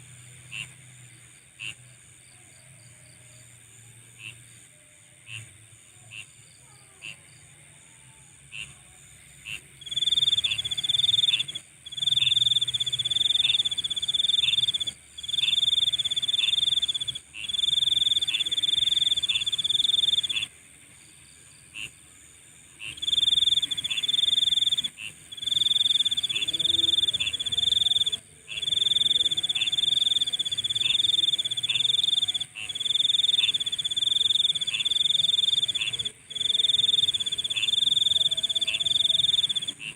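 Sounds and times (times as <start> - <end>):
high insect drone: 0.0 - 39.9
short insect chirp: 1.6 - 39.9
loud high insect trill: 9.5 - 21.6, 22.2 - 39.9.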